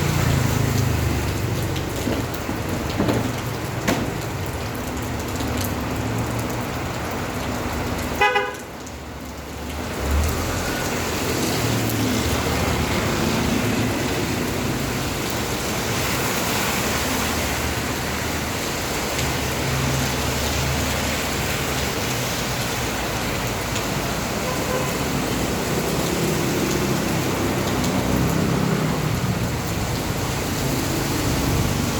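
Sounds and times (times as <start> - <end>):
road traffic: 0.0 - 31.9
steady rain: 0.0 - 31.9
vehicle horn toot: 8.2 - 8.6.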